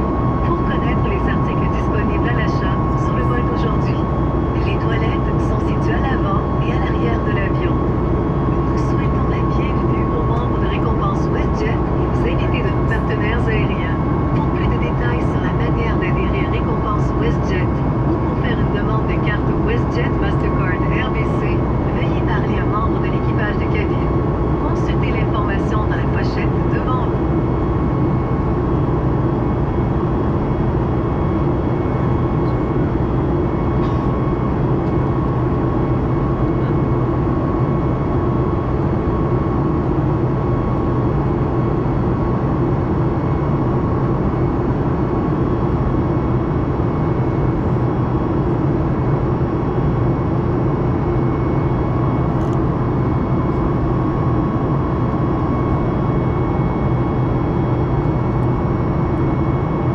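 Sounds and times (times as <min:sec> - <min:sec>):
faint steady whine: 0:00.0 - 0:59.9
jet airliner cabin noise: 0:00.0 - 0:59.9.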